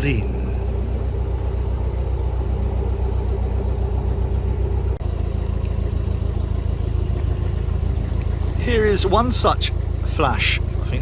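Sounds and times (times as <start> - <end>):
diesel engine chugging: 0.0 - 11.0.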